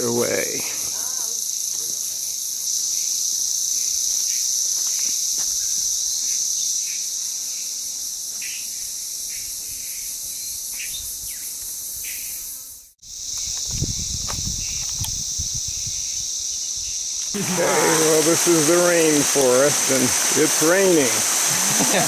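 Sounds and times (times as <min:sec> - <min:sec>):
insect chorus: 0:00.0 - 0:22.0
short insect chirps: 0:00.8 - 0:17.4.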